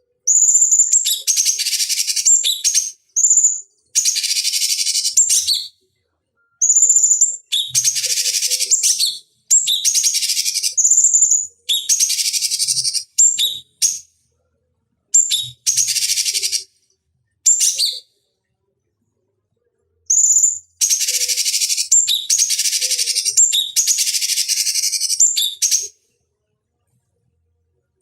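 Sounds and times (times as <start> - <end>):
songbird chattering calls: 20.1 - 25.9.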